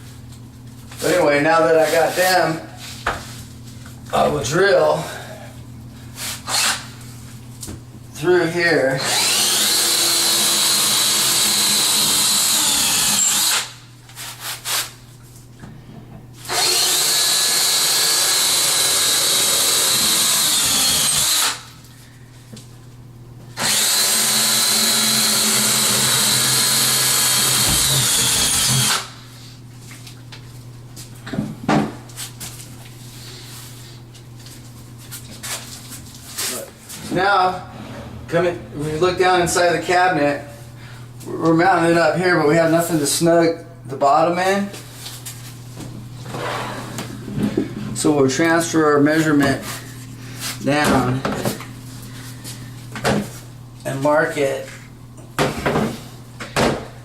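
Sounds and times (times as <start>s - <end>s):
power drill drilling into wood: 9.0s - 13.8s, 16.5s - 21.6s, 23.6s - 29.1s.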